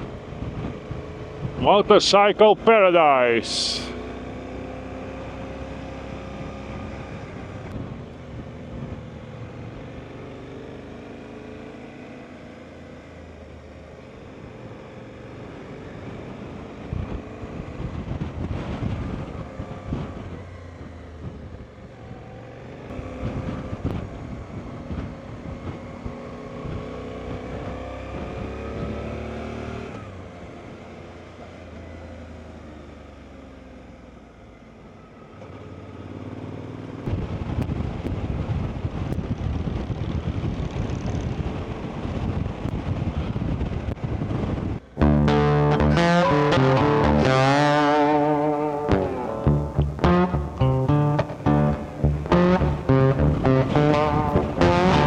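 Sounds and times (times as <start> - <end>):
wind and road noise: 0.0 - 45.4
motorcycle engine accelerating: 3.6 - 31.8, 44.9 - 55.0.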